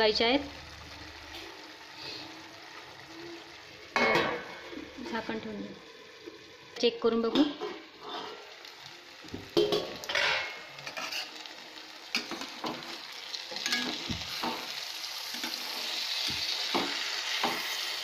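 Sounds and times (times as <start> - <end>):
vegetables sizzling in a pan: 0.0 - 18.0
spatula scraping a pan: 10.1 - 11.5.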